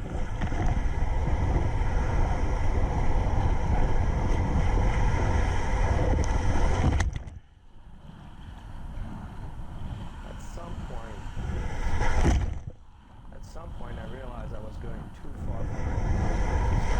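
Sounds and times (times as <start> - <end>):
wind buffeting microphone: 0.0 - 16.9
waves splashing against kayak: 8.0 - 16.9.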